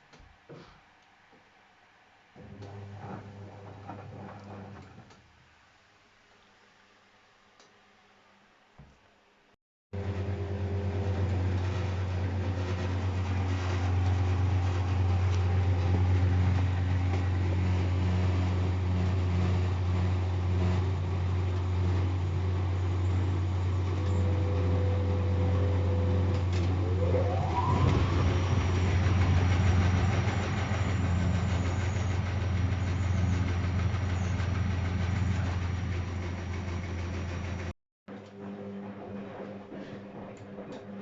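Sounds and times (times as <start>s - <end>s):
motor whining up in pitch: 10.0s - 35.5s
washing machine humming: 10.0s - 39.5s.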